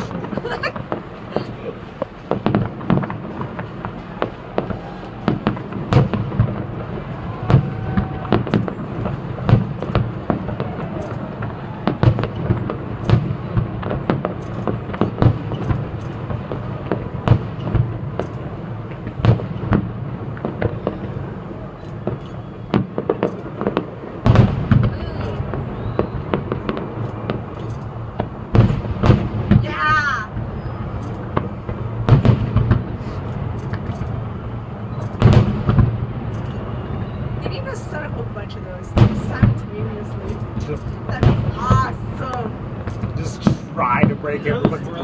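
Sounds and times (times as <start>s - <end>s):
firework bangs: 0.0s - 45.0s
crackling rumble of shells: 1.9s - 29.6s.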